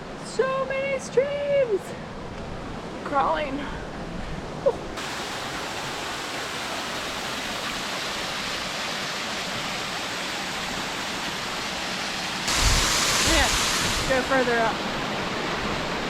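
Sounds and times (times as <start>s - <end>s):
waterfall rushing: 5.0s - 16.0s.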